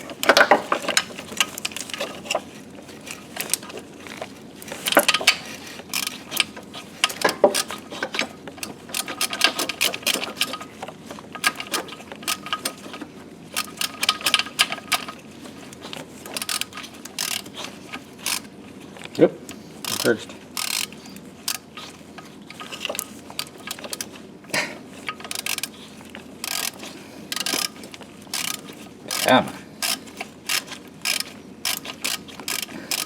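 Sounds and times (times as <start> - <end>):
ratchet clicking: 4.8 - 10.7, 11.4 - 13.0, 13.6 - 15.2, 16.2 - 18.5, 19.8 - 24.1, 25.0 - 25.8, 26.4 - 33.0.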